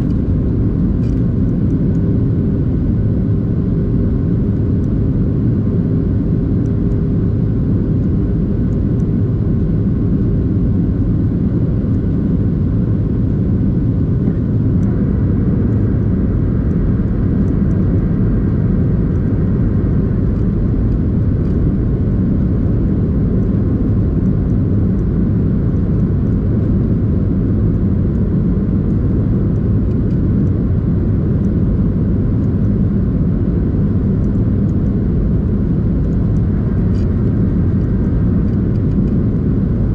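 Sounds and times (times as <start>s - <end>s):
jet engine cabin rumble: 0.0s - 39.9s.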